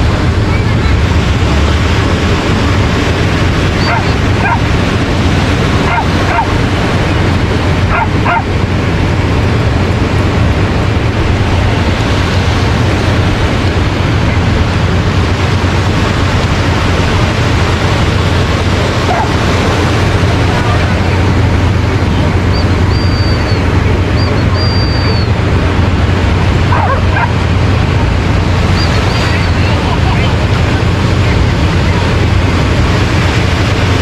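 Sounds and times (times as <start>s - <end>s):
surf rushing: 0.0s - 34.0s
wind: 0.0s - 34.0s
dog barking and yipping: 3.8s - 4.7s, 5.8s - 6.6s, 7.9s - 8.5s, 19.0s - 19.4s, 26.7s - 27.4s.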